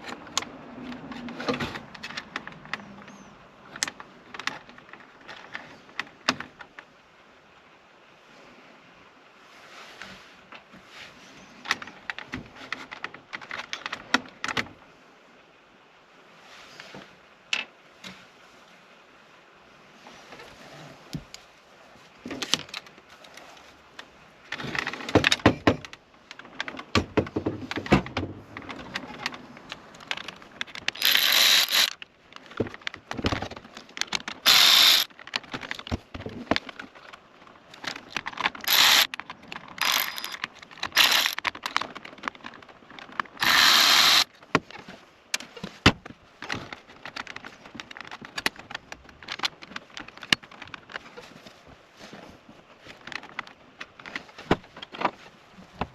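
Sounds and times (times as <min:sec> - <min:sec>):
tools clicking and rattling on trim: 0:24.6 - 0:44.3
harsh rasping bursts: 0:31.0 - 0:32.0, 0:34.4 - 0:35.1, 0:38.7 - 0:39.1, 0:39.8 - 0:41.4, 0:43.4 - 0:44.3.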